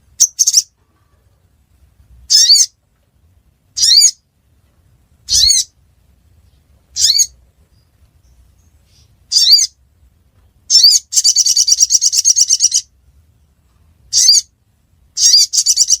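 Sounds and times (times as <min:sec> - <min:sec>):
fast bird trill: 0:03.8 - 0:04.2, 0:05.3 - 0:05.7, 0:07.0 - 0:07.4, 0:09.3 - 0:09.8, 0:10.7 - 0:12.9, 0:14.1 - 0:14.5, 0:15.2 - 0:16.0.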